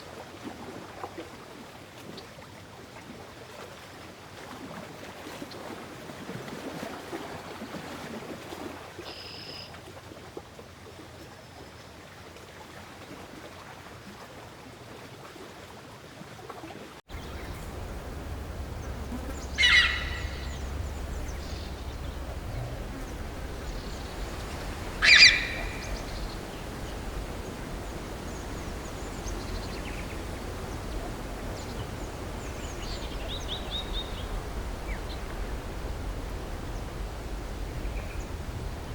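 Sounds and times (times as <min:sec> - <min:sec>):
faint chirps: 0:17.1 - 0:38.9
loud animal calls: 0:17.1 - 0:38.9.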